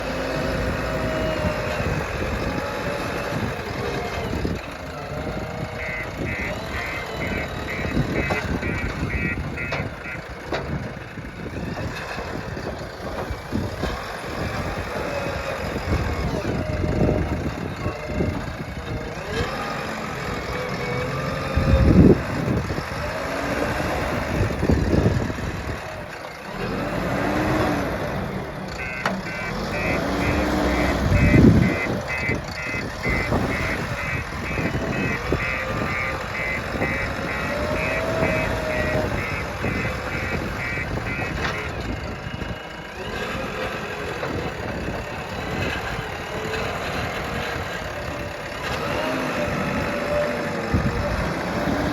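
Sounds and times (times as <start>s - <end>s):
diesel engine low rumble: 0.0s - 51.9s
short high beeps: 28.8s - 39.4s.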